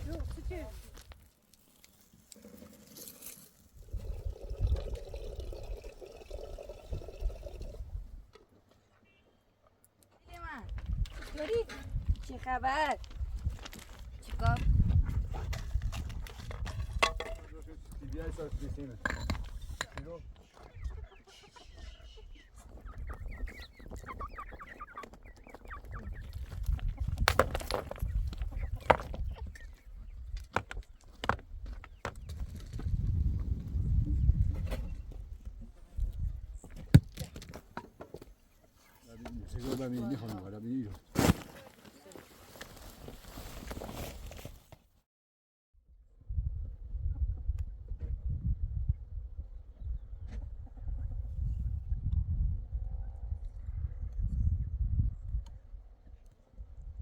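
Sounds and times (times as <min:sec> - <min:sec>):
liquid pouring: 0:02.3 - 0:08.1
chickens clucking: 0:19.5 - 0:27.2, 0:27.8 - 0:30.3, 0:49.8 - 0:51.5.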